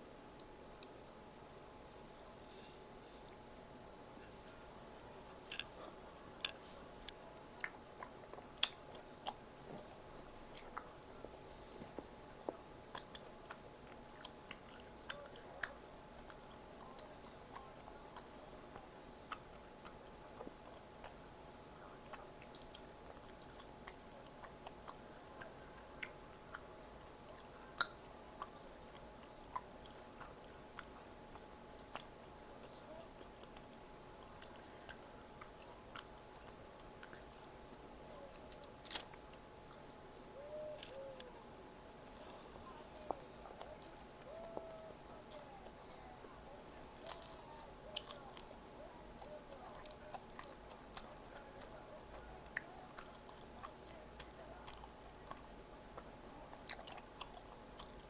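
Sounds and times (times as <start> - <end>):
person chewing food: 0.0 - 21.2, 22.0 - 58.0
sharp clicks and crunches: 38.4 - 40.0.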